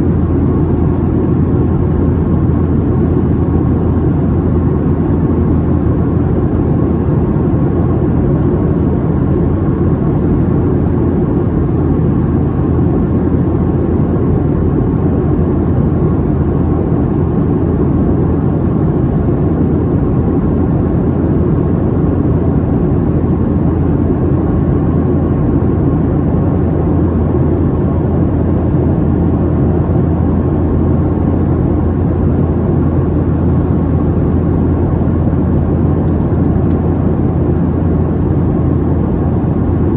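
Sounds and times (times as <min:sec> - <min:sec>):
faint steady whine: 0:00.0 - 0:39.9
jet engines humming: 0:00.0 - 0:39.9.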